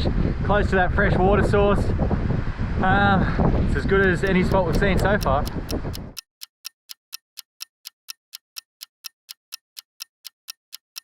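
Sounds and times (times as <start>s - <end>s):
clock ticking: 4.0s - 11.0s.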